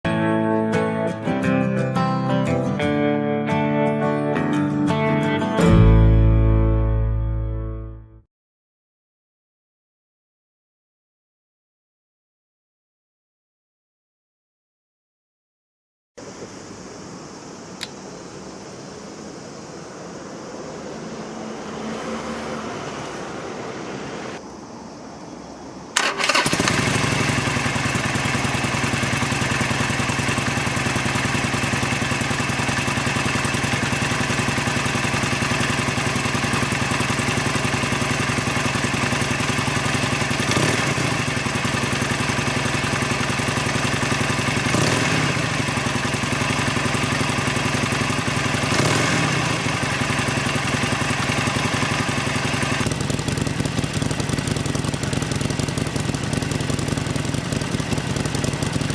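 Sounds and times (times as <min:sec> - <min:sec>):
motorcycle engine starting: 0:05.6 - 0:07.8, 0:20.8 - 0:24.4, 0:26.0 - 0:58.9
motorcycle engine idling: 0:26.0 - 0:58.9.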